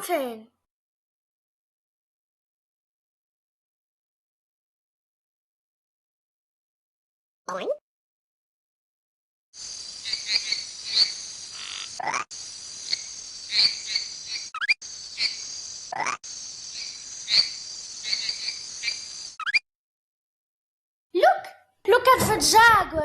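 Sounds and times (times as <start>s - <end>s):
high insect chorus: 9.6s - 19.6s
short chirping calls: 9.6s - 19.6s
sweeping calls: 9.6s - 19.6s.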